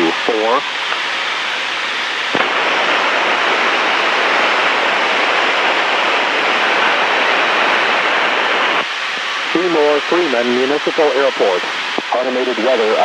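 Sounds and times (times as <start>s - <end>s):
radio static hiss: 0.0s - 13.0s
radio click: 2.3s - 2.8s, 11.6s - 12.2s.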